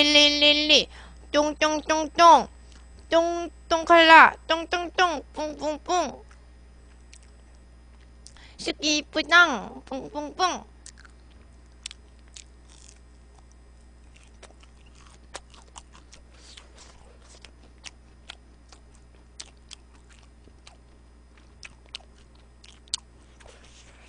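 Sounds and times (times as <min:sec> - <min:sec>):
steady low hum: 0:00.0 - 0:24.0
chewing crunchy food: 0:06.2 - 0:08.4, 0:10.8 - 0:24.0.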